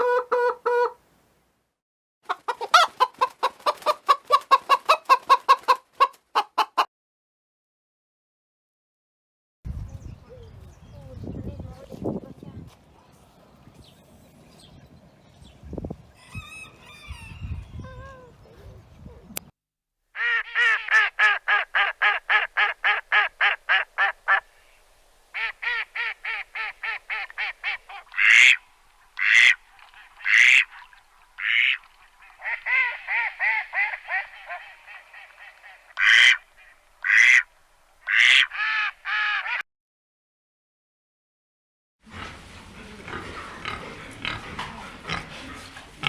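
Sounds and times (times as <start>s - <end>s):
ducks quacking: 25.4s - 39.6s, 42.1s - 46.0s.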